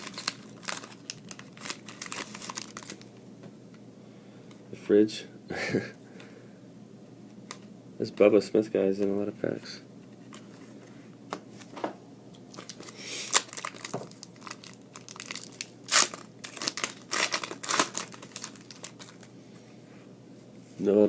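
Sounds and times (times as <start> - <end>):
wrapper tearing and crinkling: 0.0 - 3.1, 12.5 - 19.3.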